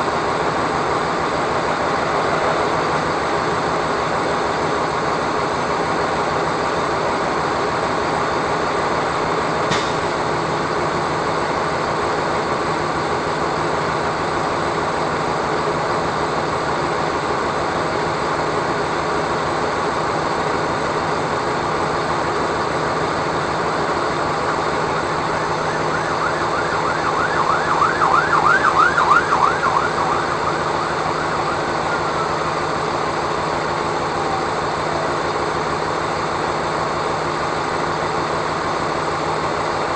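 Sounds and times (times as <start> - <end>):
emergency siren yelping: 0.0 - 7.3, 22.7 - 39.5
road noise: 0.0 - 39.9
vehicle engine drone: 0.0 - 39.9.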